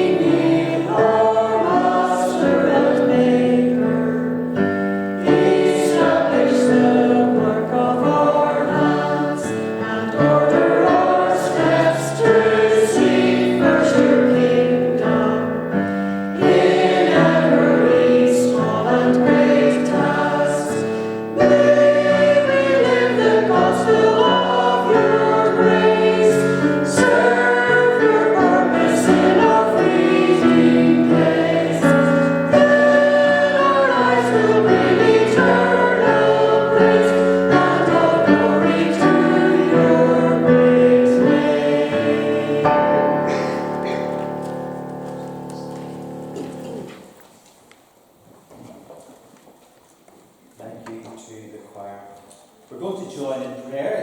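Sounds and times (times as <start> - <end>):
choir singing a hymn: 0.0 - 47.1.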